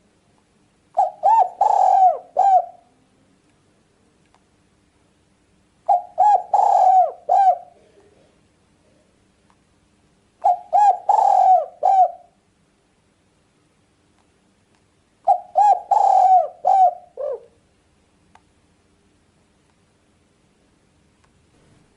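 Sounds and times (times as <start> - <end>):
dove cooing: 1.0 - 3.0, 5.9 - 8.0, 10.4 - 12.4, 15.2 - 17.6.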